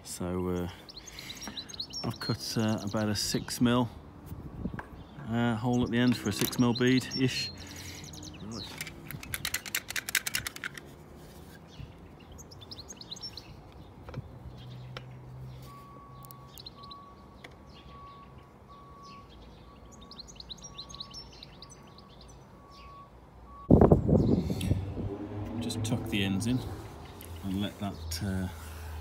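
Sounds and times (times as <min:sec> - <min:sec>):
small birds chirping: 0:00.1 - 0:29.0
person speaking: 0:08.4 - 0:09.0, 0:25.6 - 0:29.0.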